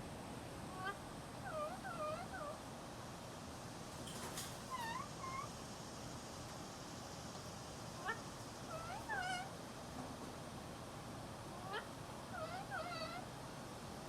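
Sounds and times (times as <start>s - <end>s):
parrot calls: 0.8s - 2.6s, 4.7s - 5.5s, 8.0s - 9.5s, 11.5s - 13.3s.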